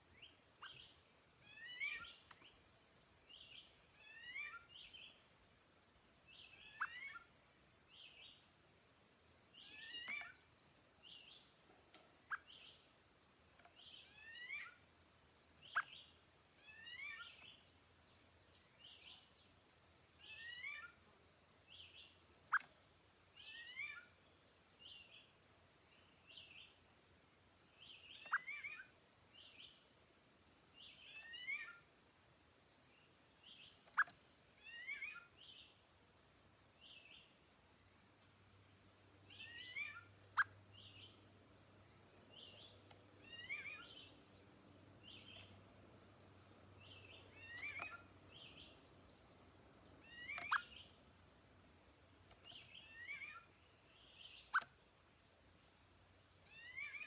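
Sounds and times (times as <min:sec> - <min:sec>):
birds chirping: 0:00.0 - 0:57.0
birds calling sliding notes: 0:42.4 - 0:51.0.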